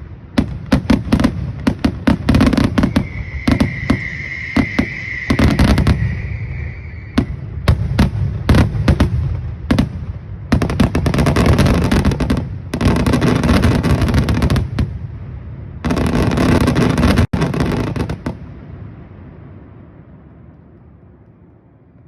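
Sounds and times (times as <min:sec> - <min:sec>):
fireworks crackling: 0:00.0 - 0:19.0
fireworks bangs: 0:00.0 - 0:19.4
steady whistling tone: 0:02.4 - 0:08.1.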